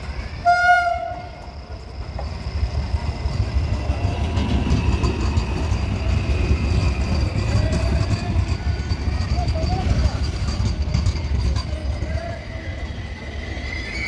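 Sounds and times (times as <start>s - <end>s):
train coaches rolling past: 0.0s - 14.0s
train horn blast: 0.4s - 1.4s.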